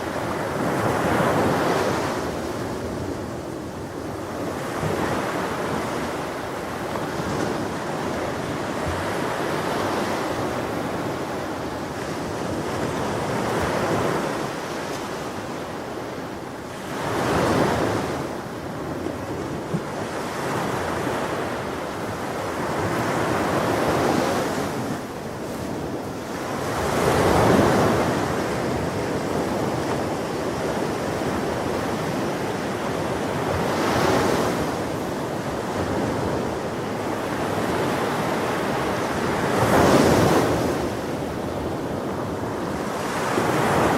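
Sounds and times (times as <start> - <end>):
ocean waves breaking: 0.0 - 43.9.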